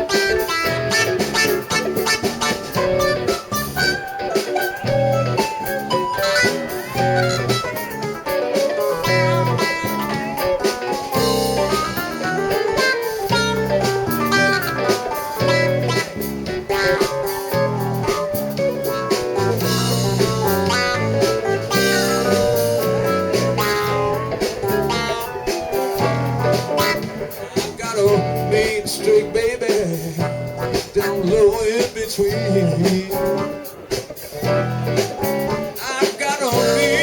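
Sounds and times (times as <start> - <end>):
blues band playing: 0.0 - 37.0
guitar lines: 0.0 - 37.0.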